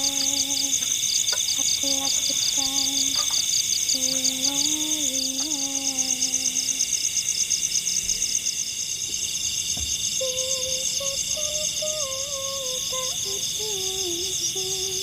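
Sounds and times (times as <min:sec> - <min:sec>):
person humming a tune: 0:00.0 - 0:01.0, 0:01.6 - 0:03.3, 0:03.9 - 0:06.9, 0:10.2 - 0:15.0
insects chirping chorus: 0:00.0 - 0:15.0.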